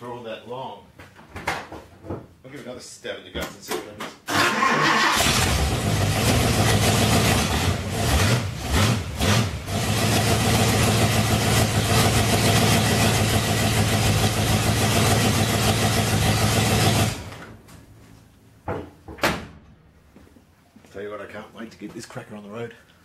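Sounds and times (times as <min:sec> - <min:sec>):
car engine running noisily: 0:05.2 - 0:17.3.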